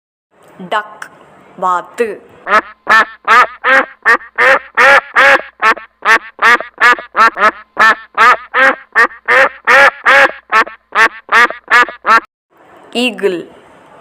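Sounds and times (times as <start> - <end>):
duck quacking: 2.4 - 12.3.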